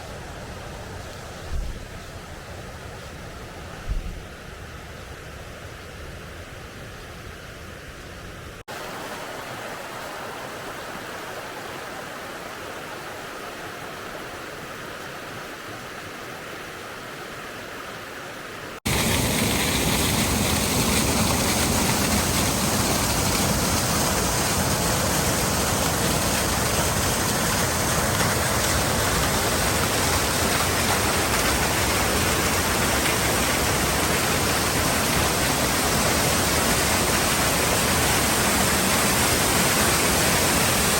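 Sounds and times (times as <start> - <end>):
rush of falling water: 8.6 - 40.9.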